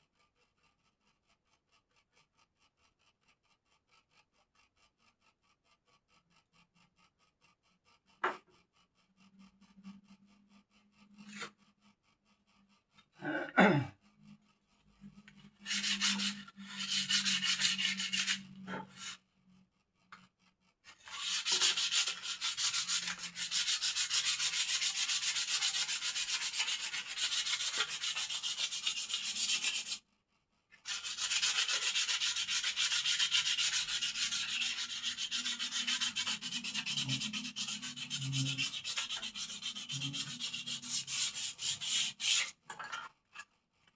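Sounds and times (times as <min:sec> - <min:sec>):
sanding scraping: 0:15.0 - 0:19.2, 0:20.9 - 0:30.0, 0:30.8 - 0:42.8.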